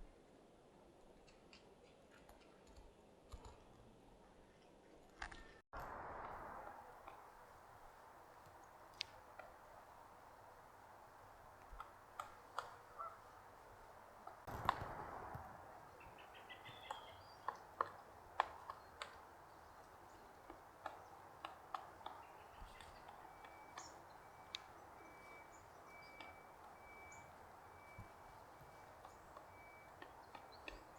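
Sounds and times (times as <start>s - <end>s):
bird call: 6.5s - 30.9s
woodpecker pecking wood: 7.0s - 30.9s.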